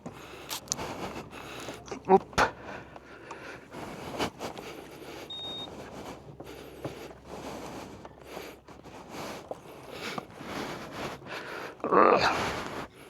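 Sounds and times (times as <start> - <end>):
short high beep: 5.3 - 5.7.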